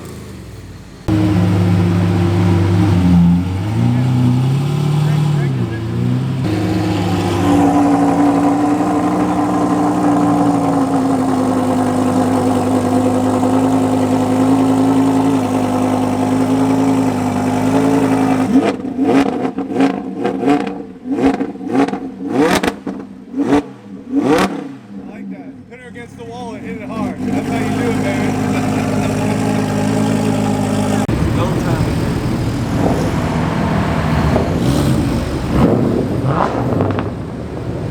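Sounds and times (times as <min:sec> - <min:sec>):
engine throttle blips: 0:00.0 - 0:25.0, 0:25.6 - 0:37.9
car engine revving: 0:00.0 - 0:37.9.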